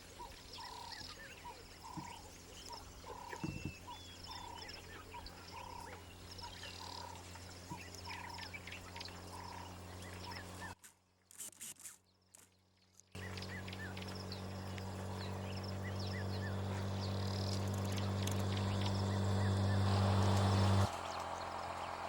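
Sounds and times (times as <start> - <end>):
small birds chirping: 0.0 - 10.8, 12.1 - 22.0
steady low hum: 13.2 - 22.0.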